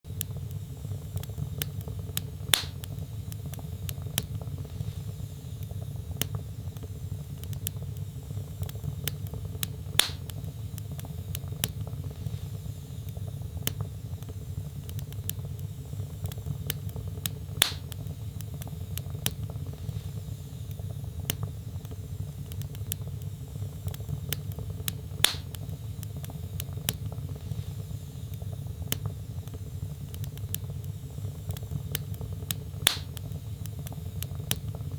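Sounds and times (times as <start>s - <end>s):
low rumble of flames: 0.0s - 34.9s
log fire crackling: 0.1s - 34.9s
loud fire pop: 2.6s - 2.8s, 10.0s - 10.3s, 17.6s - 17.9s, 25.2s - 25.5s, 32.8s - 33.2s.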